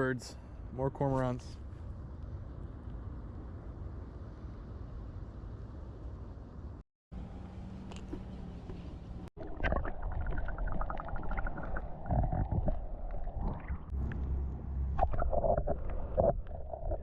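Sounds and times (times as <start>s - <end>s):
wind rumbling on microphone: 9.0s - 17.0s.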